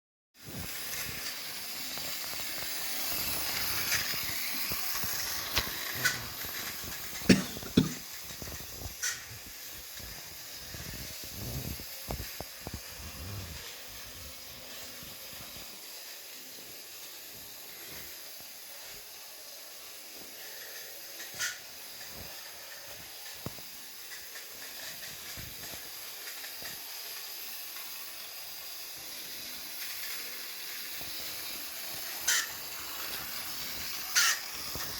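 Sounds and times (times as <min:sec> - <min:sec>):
model train running on track: 0:00.4 - 0:34.9.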